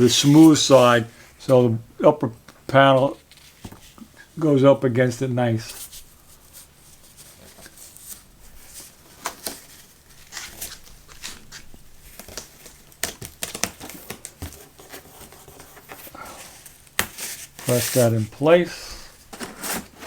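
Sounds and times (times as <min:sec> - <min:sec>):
cardboard tapping and scraping: 0:12.1 - 0:18.1, 0:19.2 - 0:20.0.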